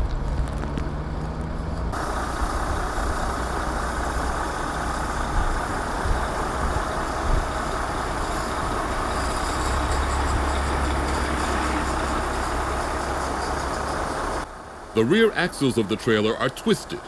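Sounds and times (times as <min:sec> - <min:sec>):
truck diesel engine running: 0:00.0 - 0:17.0.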